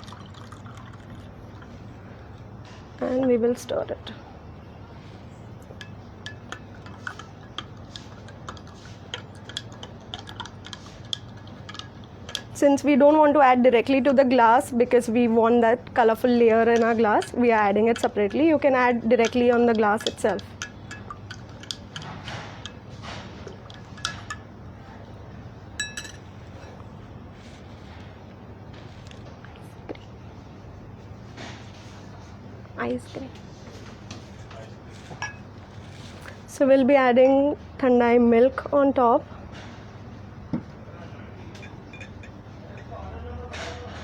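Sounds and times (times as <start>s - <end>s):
spoon clinking in container: 5.7s - 12.6s, 19.2s - 22.8s, 23.6s - 24.5s, 25.8s - 26.8s, 41.6s - 42.9s.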